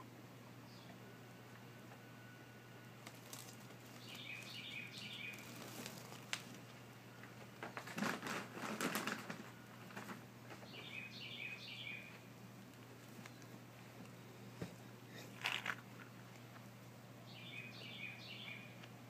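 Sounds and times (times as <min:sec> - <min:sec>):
small bird chirping: 0:03.3 - 0:06.1, 0:10.6 - 0:12.1, 0:17.3 - 0:18.8.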